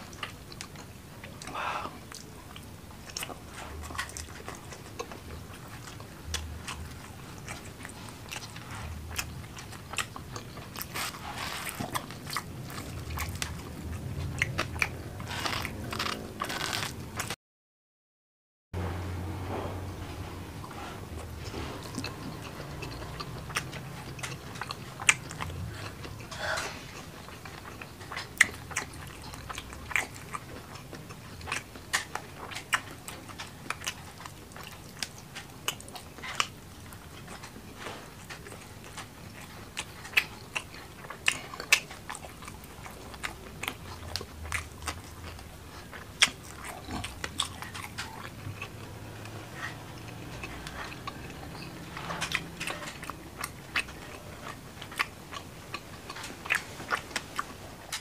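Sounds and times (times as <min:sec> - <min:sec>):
close chewing: 0:00.0 - 0:17.4, 0:19.5 - 0:58.0.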